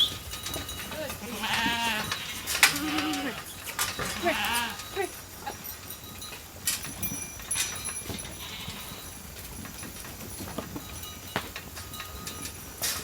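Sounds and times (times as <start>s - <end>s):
hooves clattering: 0.0s - 13.0s
sheep bleating: 1.0s - 5.1s.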